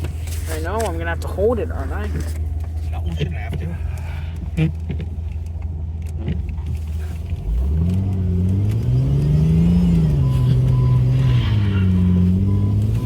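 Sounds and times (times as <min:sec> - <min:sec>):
engine revving inside cab: 0:00.0 - 0:13.0.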